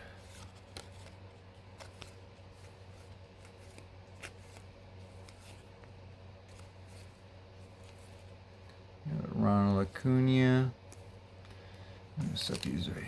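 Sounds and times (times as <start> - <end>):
low steady hum: 0.0 - 13.0
cards being flipped: 0.1 - 8.8, 10.8 - 11.6, 12.2 - 13.0.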